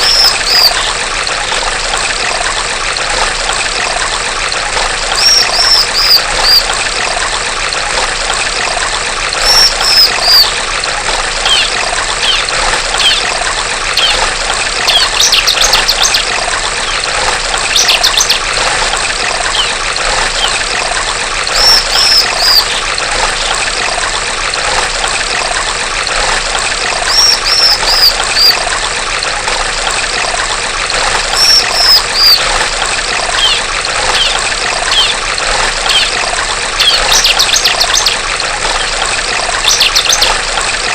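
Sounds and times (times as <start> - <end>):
bird high chirps: 0.0 - 0.9, 5.2 - 6.6, 9.4 - 10.5, 11.4 - 13.3, 17.7 - 18.4, 19.5 - 19.8, 21.5 - 22.8, 27.1 - 28.6, 31.3 - 32.5, 33.4 - 35.2, 35.9 - 36.1, 36.8 - 38.2, 39.7 - 40.3
running water trickling: 0.0 - 40.9.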